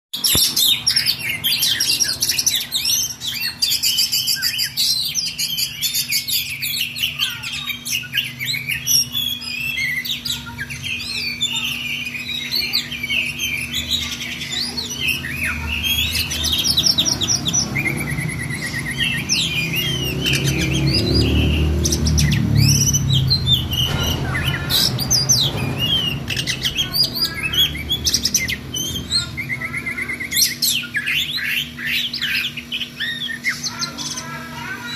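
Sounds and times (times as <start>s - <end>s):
bird singing whistles and trills: 0.2s - 34.2s
low rumble: 16.1s - 29.6s.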